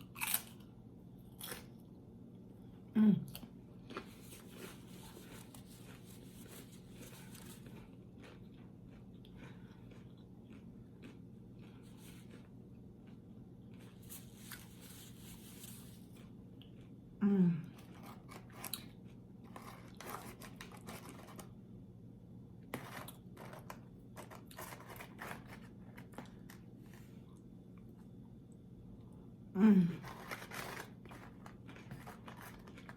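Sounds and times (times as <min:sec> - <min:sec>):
chewing crunchy chips: 0:00.0 - 0:01.8, 0:03.3 - 0:14.8, 0:17.7 - 0:21.6, 0:30.0 - 0:32.9
low voiced sound: 0:17.2 - 0:17.8, 0:29.5 - 0:30.0.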